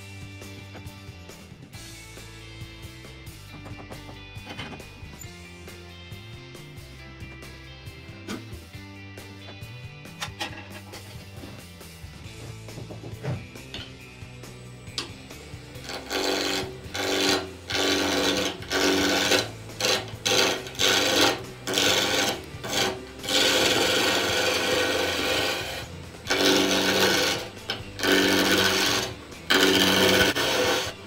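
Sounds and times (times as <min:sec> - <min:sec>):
wood lathe humming: 0:15.4 - 0:31.0
tool rasping on spinning wood: 0:15.7 - 0:31.0.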